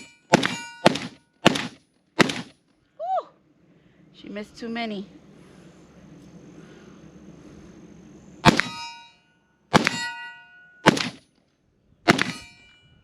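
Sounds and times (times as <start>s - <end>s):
rifle shots: 0.0s - 2.6s, 8.4s - 8.8s, 9.7s - 10.2s, 10.8s - 11.3s, 12.0s - 12.5s
steel target ringing clang: 0.0s - 2.6s, 8.4s - 11.3s, 12.1s - 13.0s.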